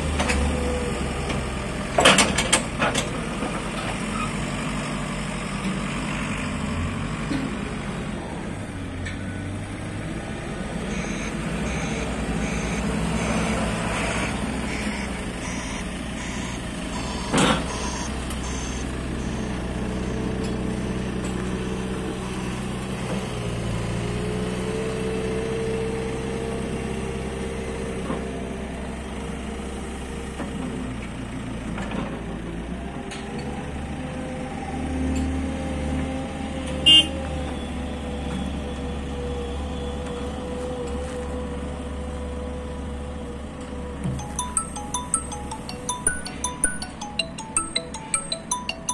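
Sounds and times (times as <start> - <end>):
diesel engine revving: 9.5 - 21.1
reversing alarm beeping: 10.9 - 20.4.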